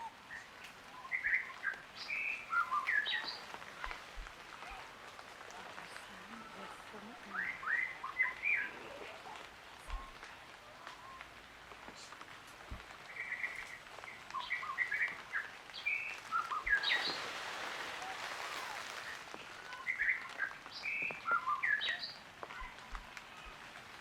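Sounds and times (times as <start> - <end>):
hissing rustling haze: 0.0 - 24.0
high chirping calls: 0.3 - 4.0, 5.8 - 10.2, 13.0 - 22.8.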